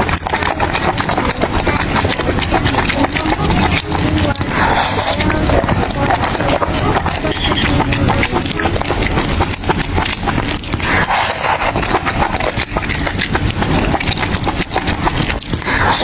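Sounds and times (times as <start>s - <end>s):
chewing and crunching food: 0.0s - 16.0s.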